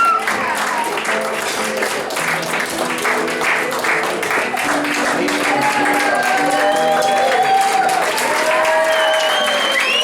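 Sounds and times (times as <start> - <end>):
audience applauding: 0.0 - 10.0
music with stepping notes: 0.2 - 7.9.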